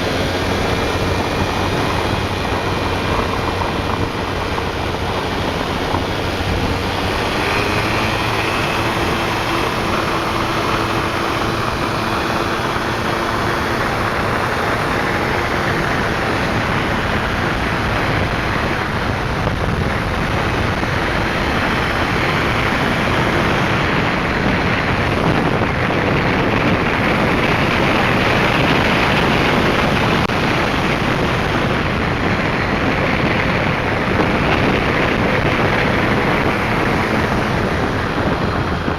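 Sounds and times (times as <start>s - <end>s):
loud rushing noise: 0.0s - 38.9s
scooter engine running: 0.0s - 38.9s.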